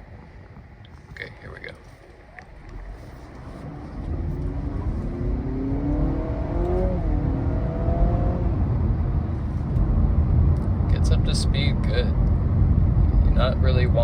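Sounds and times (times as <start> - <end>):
road rumble: 0.0 - 14.0
car engine revving up: 2.7 - 13.6.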